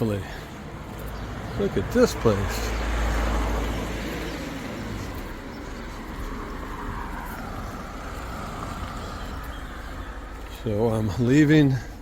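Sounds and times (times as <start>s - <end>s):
motor vehicle passing: 0.5s - 10.7s.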